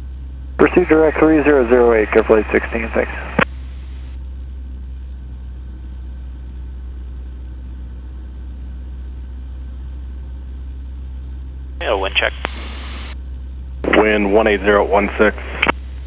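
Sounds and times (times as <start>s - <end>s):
airplane engine droning: 0.0s - 16.0s
radio click: 0.6s - 4.1s, 11.8s - 13.2s, 13.9s - 16.0s.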